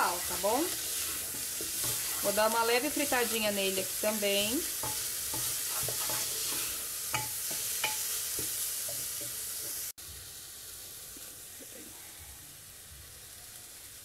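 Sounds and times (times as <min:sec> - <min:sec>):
utensil stirring and knocking pot: 0:00.0 - 0:03.4, 0:04.6 - 0:09.8
onion and garlic sizzling in oil: 0:00.0 - 0:14.0.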